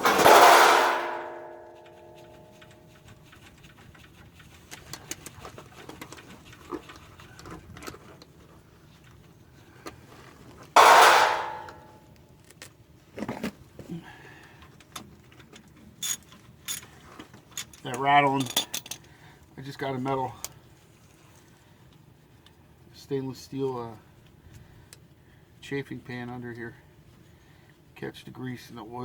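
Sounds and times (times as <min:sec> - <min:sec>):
metal pan clattering: 0:00.0 - 0:02.4, 0:10.8 - 0:11.9
hand tools clicking: 0:17.6 - 0:19.0.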